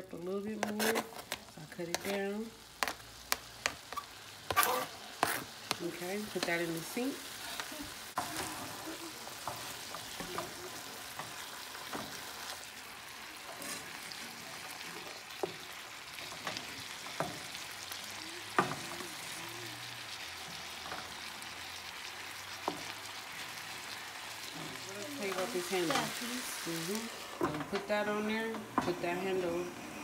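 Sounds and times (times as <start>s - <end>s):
wooden spatula scraping pan: 0.4s - 3.0s, 3.6s - 12.6s, 13.4s - 14.2s
meat and onions sizzling in pan: 1.2s - 30.0s.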